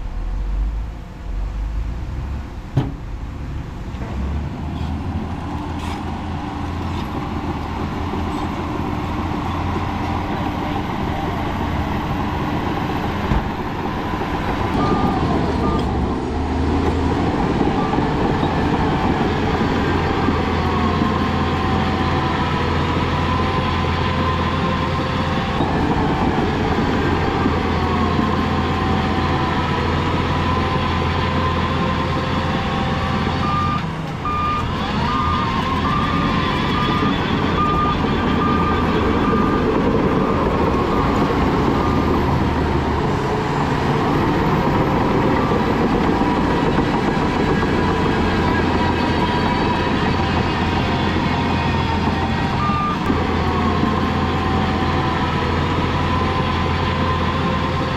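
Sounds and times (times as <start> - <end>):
heavy diesel machinery running: 0.0 - 57.9
reversing alarm beeping: 9.1 - 16.0, 31.3 - 42.6, 44.7 - 57.5.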